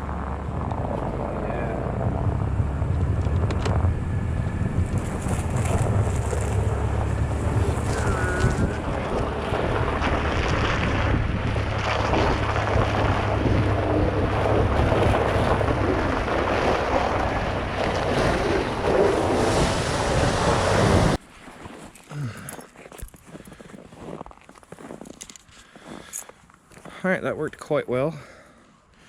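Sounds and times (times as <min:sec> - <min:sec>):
truck engine under load: 0:00.0 - 0:21.2
wind noise on microphone: 0:00.0 - 0:21.2.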